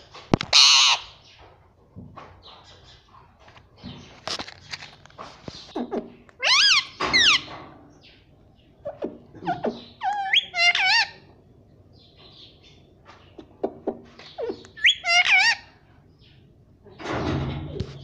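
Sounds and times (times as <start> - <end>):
parrot chattering: 5.7 - 7.4, 8.8 - 11.3, 13.4 - 15.7.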